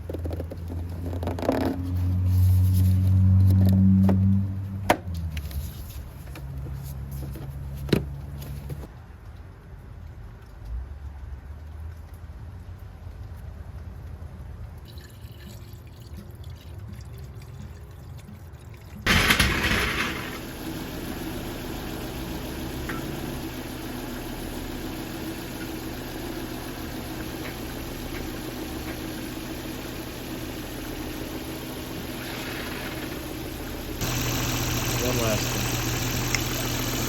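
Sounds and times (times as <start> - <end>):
car engine starting and idling: 19.1 - 37.0.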